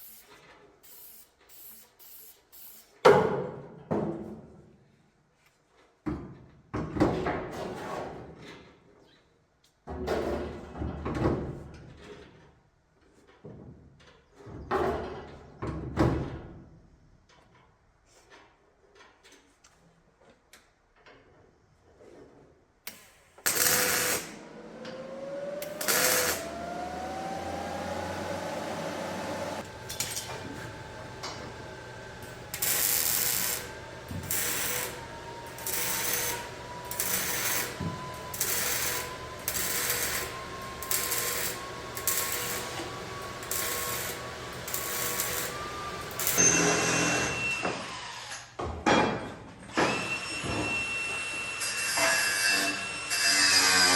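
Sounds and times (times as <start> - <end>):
power tool motor whining: 23.5 - 47.0
power tool loud bursts: 23.5 - 48.5.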